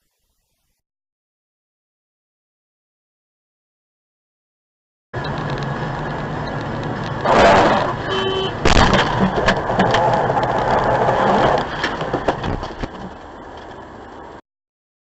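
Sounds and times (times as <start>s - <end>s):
car crash impact: 8.6s - 13.1s.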